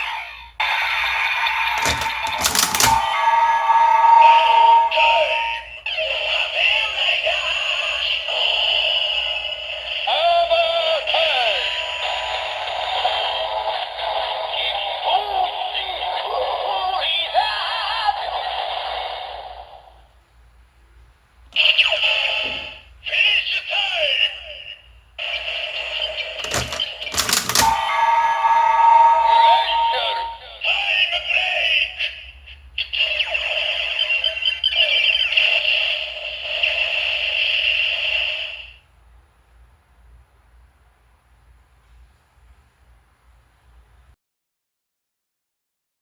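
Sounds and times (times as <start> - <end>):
toy electronic music and voice: 4.9 - 19.4, 21.6 - 26.4, 29.4 - 38.7.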